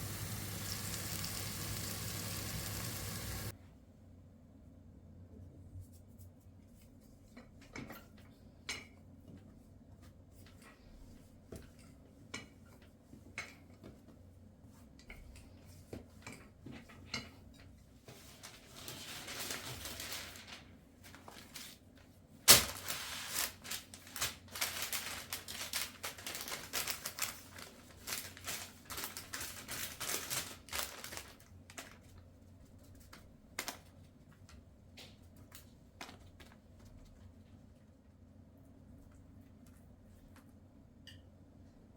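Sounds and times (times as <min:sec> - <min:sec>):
clattering and crinkling: 0:18.1 - 0:21.8, 0:22.5 - 0:32.2.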